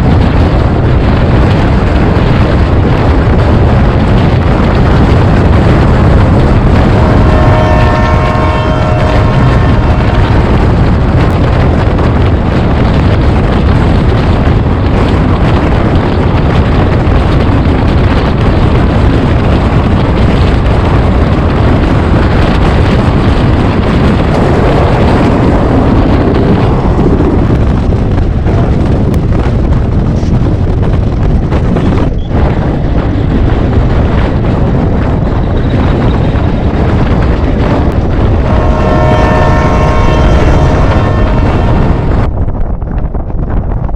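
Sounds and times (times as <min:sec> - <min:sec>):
train rumbling at speed: 0:00.0 - 0:43.9
wind buffeting microphone: 0:00.0 - 0:43.9
steady pitched tone: 0:06.9 - 0:10.8.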